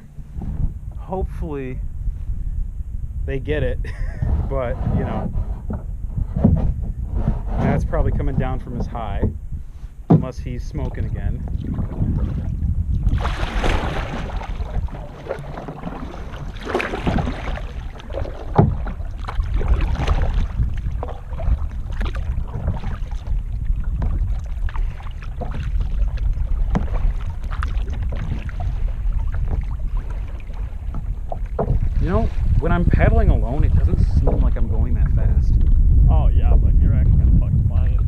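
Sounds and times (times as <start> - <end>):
wind rumble on microphone: 0.0 - 38.0
paddle strokes splashing: 10.8 - 34.5.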